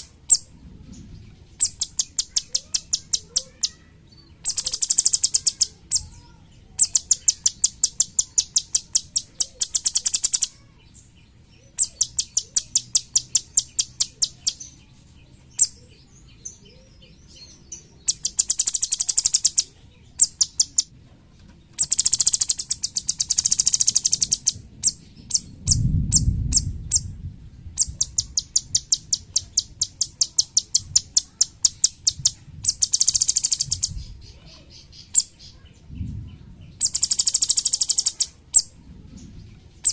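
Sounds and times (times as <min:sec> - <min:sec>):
songbird singing clicking bursts: 0:01.6 - 0:03.8, 0:04.4 - 0:06.2, 0:06.8 - 0:10.6, 0:11.7 - 0:14.8, 0:17.3 - 0:20.9, 0:21.7 - 0:27.1, 0:27.8 - 0:34.2, 0:36.8 - 0:38.8
low rumble: 0:24.6 - 0:28.4, 0:35.7 - 0:36.8.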